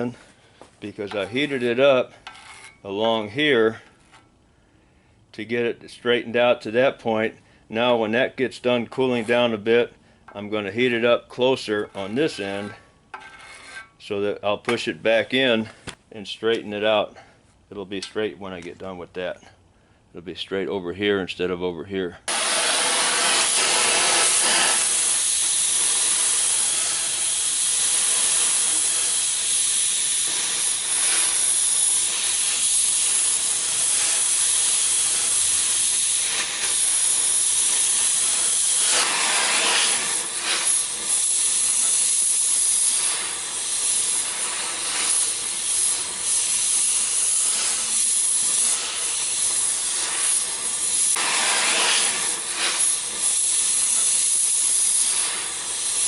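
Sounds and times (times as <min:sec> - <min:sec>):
cutting torch flame hissing: 0:22.3 - 0:56.0.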